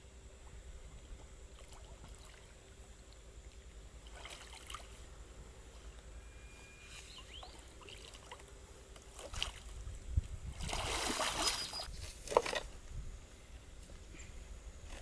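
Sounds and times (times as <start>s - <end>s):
water sloshing and splashing: 1.0s - 5.9s, 7.3s - 12.8s.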